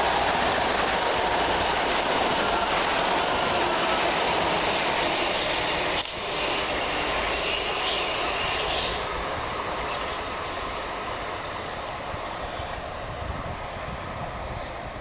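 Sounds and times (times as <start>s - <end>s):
train rumble and wheel noise: 0.0s - 15.0s.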